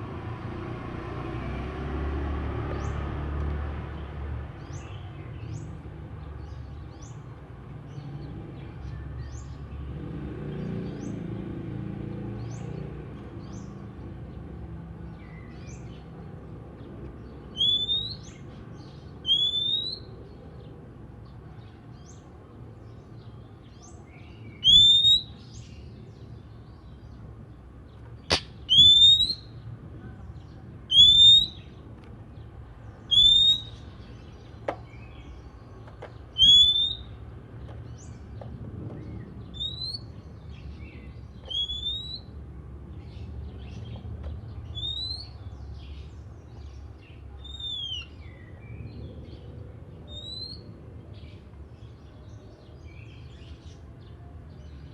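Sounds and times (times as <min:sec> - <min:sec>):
bird rising whistle: 0:17.6 - 0:18.2, 0:24.6 - 0:25.3, 0:28.3 - 0:29.5, 0:30.9 - 0:31.6, 0:33.1 - 0:33.8, 0:36.4 - 0:37.2, 0:41.5 - 0:42.3.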